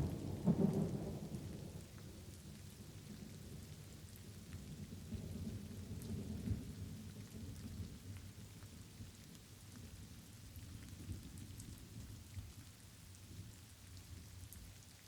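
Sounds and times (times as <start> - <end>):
rolling thunder rumble: 0.0 - 1.8
raindrops ticking: 0.0 - 15.0.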